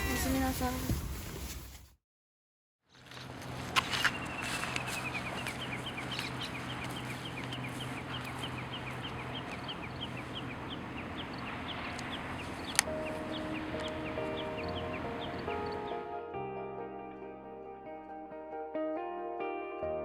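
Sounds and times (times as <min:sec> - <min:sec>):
steady rushing background: 0:04.6 - 0:15.9.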